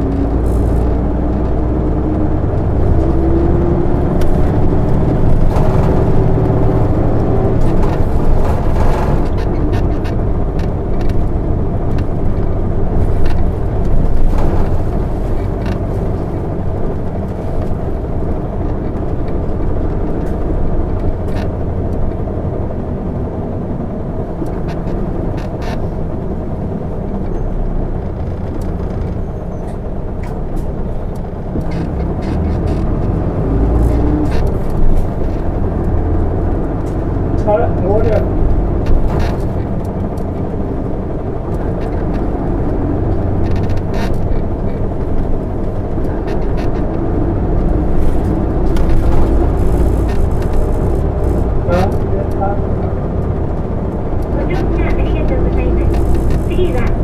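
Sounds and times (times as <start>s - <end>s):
bus diesel engine running: 0.0s - 57.0s
light clicks and rattles: 24.2s - 57.0s.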